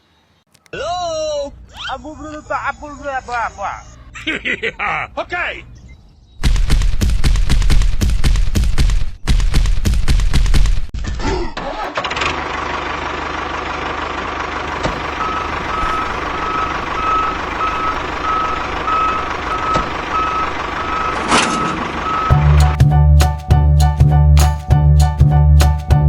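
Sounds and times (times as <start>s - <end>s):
vehicle engine running: 12.0s - 22.8s
reversing beeper: 14.7s - 22.8s.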